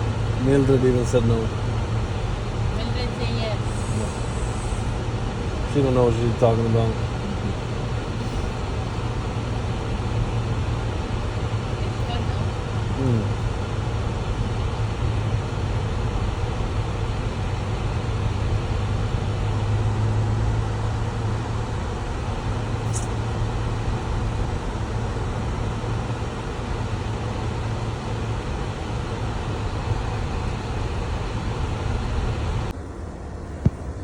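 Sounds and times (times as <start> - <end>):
car engine and road drone: 0.0 - 34.0
high chirp: 22.9 - 23.2.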